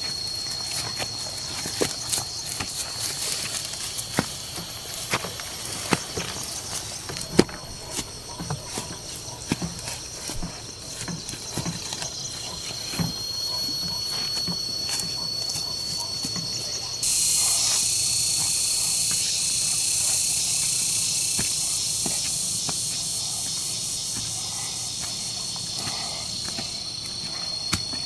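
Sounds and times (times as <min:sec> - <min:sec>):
high-pitched insect buzzing: 0:00.0 - 0:28.0.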